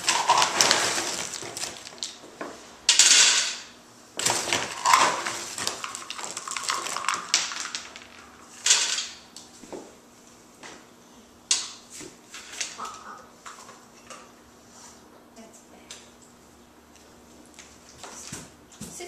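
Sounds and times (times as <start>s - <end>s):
bowl rattling: 0.0s - 2.2s, 4.5s - 9.0s
dog crunching dry food: 0.0s - 2.2s, 4.3s - 8.3s.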